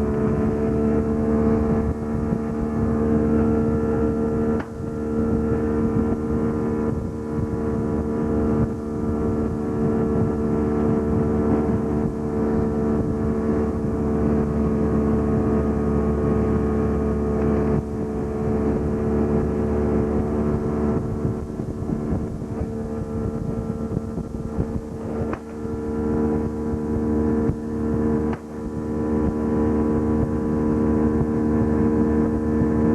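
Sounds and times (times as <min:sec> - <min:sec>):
boat motor running: 0:00.0 - 0:32.9.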